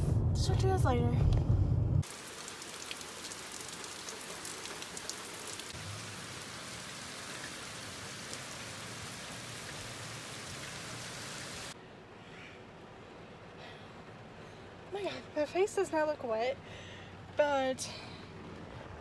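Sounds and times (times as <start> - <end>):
water drips ticking: 2.0 - 10.9
heavy rain pouring: 2.0 - 11.8.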